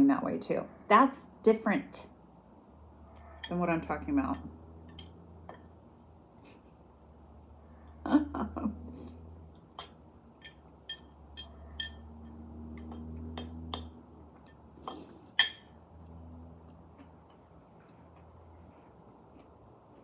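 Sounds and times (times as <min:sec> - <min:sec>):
utensil clinking against a dish: 0:03.1 - 0:05.7, 0:09.6 - 0:15.8.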